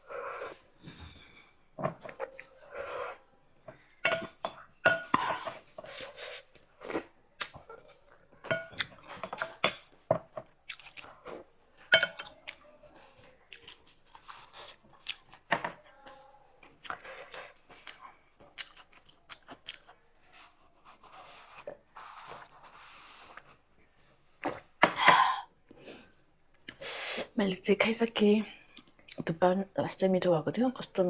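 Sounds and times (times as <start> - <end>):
chewing: 0.0 - 22.5
wet smacks and mouth clicks: 16.8 - 20.0.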